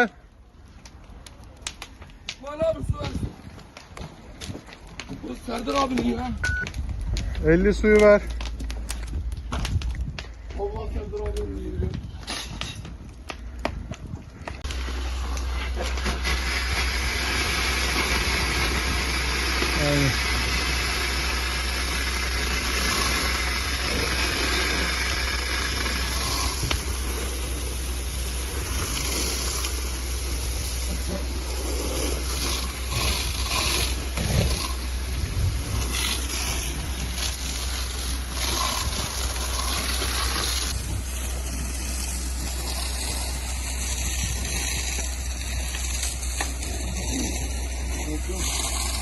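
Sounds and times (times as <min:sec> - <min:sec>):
fire engine running: 0:12.2 - 0:49.0
water spraying from hoses: 0:14.6 - 0:49.0.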